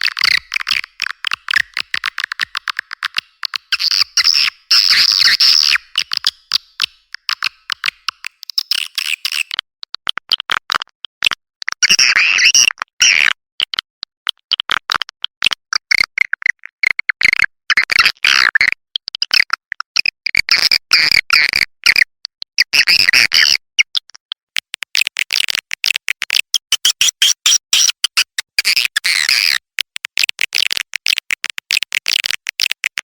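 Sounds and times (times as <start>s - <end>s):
swiftlet twittering calls: 0.0s - 9.5s.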